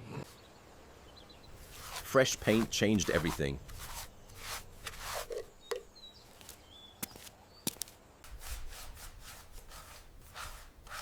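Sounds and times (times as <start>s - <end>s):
rubbing strokes on wood: 1.5s - 5.6s, 8.2s - 11.0s.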